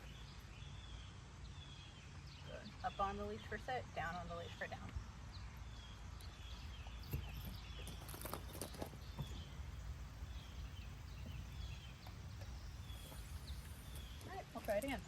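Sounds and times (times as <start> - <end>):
steady low rumble: 9.0 - 15.0.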